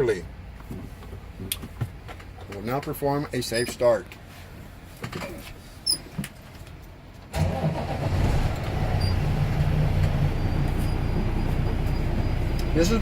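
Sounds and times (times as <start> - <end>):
truck engine starting and idling: 7.3 - 13.0.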